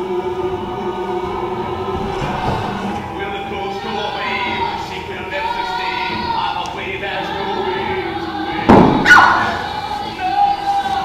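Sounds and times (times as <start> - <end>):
choir singing held notes: 0.0 - 11.0
loud thump: 8.7 - 9.3.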